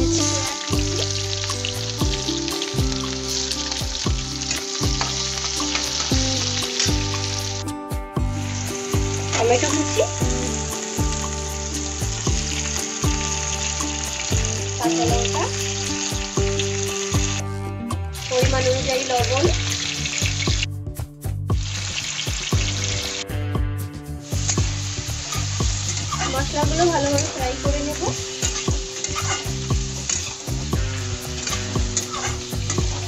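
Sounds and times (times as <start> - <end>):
onions sizzling in hot oil: 0.0 - 20.7, 21.5 - 33.0
metal spatula scraping a pan: 25.2 - 26.6, 28.4 - 30.4, 31.3 - 33.0.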